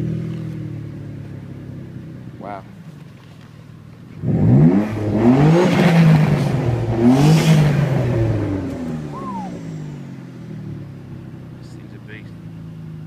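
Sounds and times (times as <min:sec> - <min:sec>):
car engine revving hard: 0:04.2 - 0:10.8.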